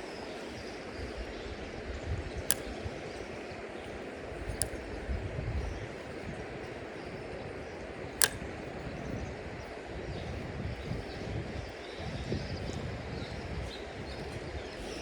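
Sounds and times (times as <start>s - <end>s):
sharp click: 2.4s - 7.4s, 8.0s - 13.4s.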